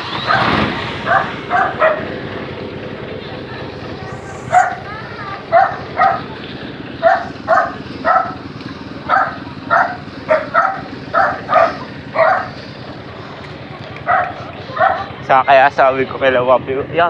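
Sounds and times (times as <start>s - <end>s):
low background rumble: 0.0s - 17.0s
dog barking: 0.2s - 2.1s, 4.4s - 6.3s, 7.0s - 8.4s, 9.0s - 12.6s, 14.0s - 15.2s.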